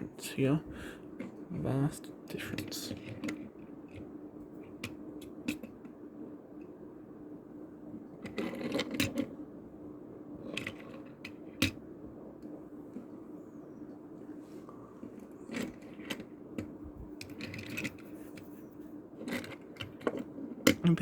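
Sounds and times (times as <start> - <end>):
steady low hum: 0.0 - 21.0
toy cars clattering: 15.4 - 18.4, 19.2 - 21.0.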